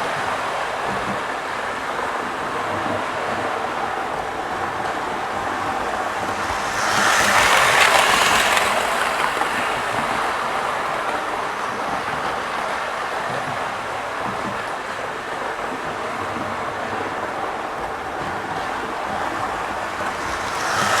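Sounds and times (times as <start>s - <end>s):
model train running on track: 0.0s - 21.0s.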